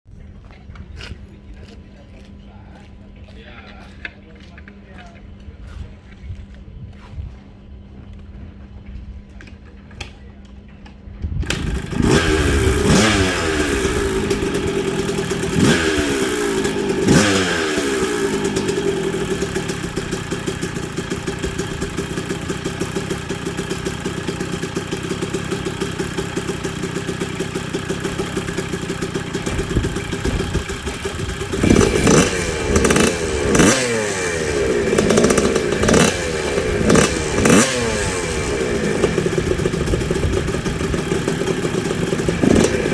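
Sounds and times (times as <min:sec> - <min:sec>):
two-stroke engine revving: 0:11.4 - 0:42.9.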